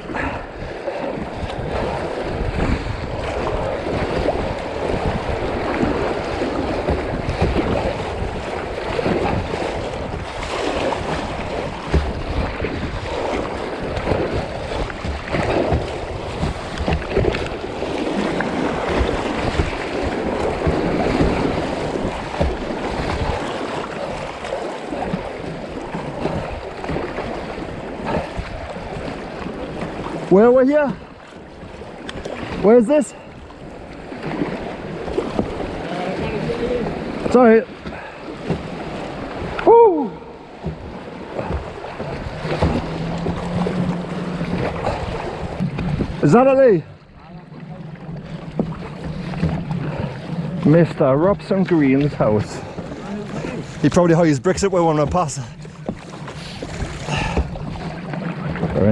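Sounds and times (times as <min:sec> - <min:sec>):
wind buffeting microphone: 0:00.0 - 0:30.4, 0:33.3 - 0:46.3
river water rushing: 0:00.0 - 0:58.9.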